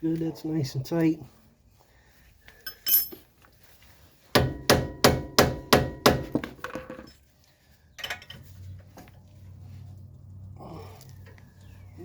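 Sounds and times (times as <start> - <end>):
hammer striking steel: 4.4 - 6.4.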